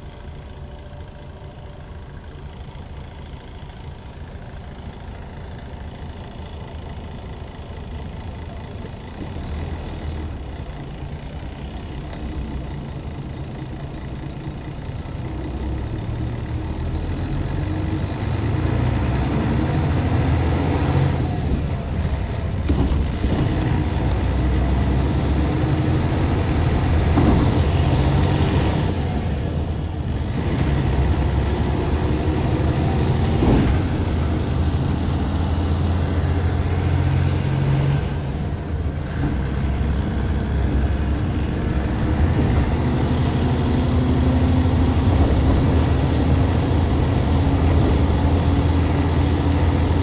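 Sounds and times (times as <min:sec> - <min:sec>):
bus diesel engine droning: 0:00.0 - 0:50.0.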